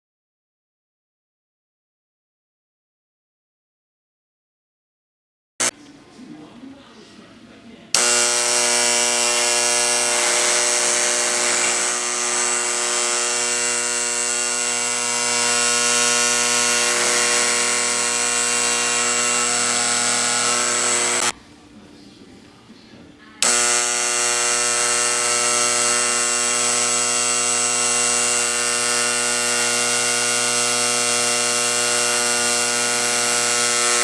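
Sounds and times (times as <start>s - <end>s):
electromagnetic vibrator buzzing: 8.0s - 21.3s, 23.4s - 34.0s.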